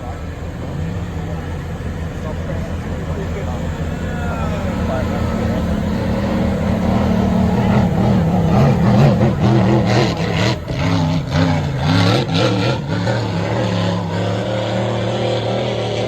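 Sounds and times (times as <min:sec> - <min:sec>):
motorboat engines revving: 0:00.0 - 0:16.0.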